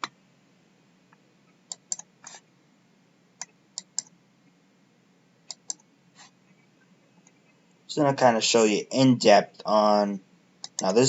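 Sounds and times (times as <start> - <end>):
computer mouse clicking: 1.7 - 2.4, 3.4 - 4.1, 5.5 - 5.9, 10.6 - 11.0.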